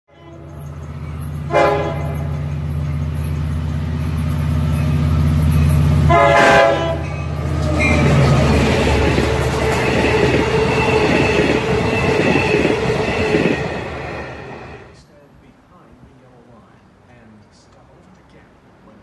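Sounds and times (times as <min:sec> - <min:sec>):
train horn: 0:00.1 - 0:00.6, 0:01.4 - 0:02.6, 0:05.9 - 0:15.0
low engine rumble: 0:00.1 - 0:14.2
train wheel and rail noise: 0:00.1 - 0:19.0.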